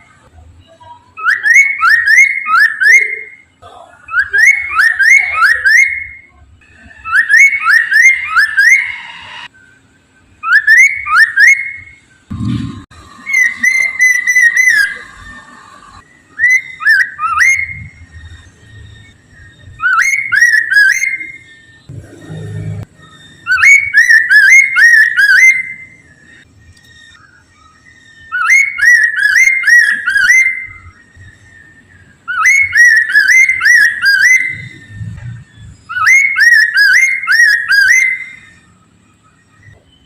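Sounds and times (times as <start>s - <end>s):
bird singing whistled phrases: 1.0s - 12.0s, 13.2s - 15.4s, 16.1s - 21.8s, 22.9s - 40.0s
low rumble: 21.9s - 23.1s.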